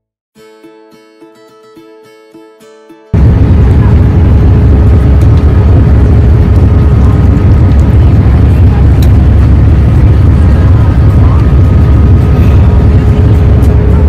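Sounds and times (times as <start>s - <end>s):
faint steady whine: 3.2s - 14.0s
vehicle low rumble: 3.2s - 14.0s.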